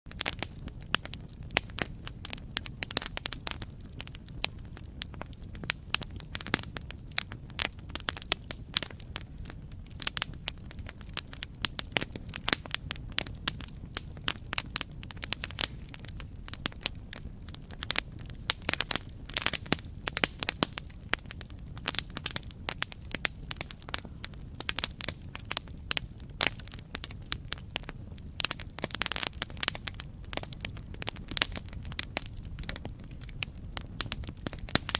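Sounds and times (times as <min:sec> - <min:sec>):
campfire crackling: 0:00.1 - 0:34.9.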